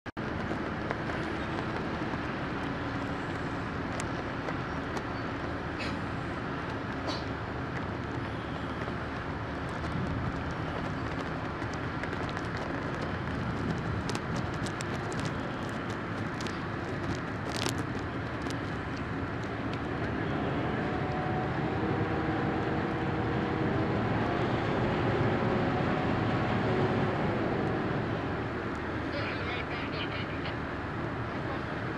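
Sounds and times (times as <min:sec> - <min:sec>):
outdoor rumble: 0:00.1 - 0:31.9
diesel engine running: 0:00.2 - 0:31.9.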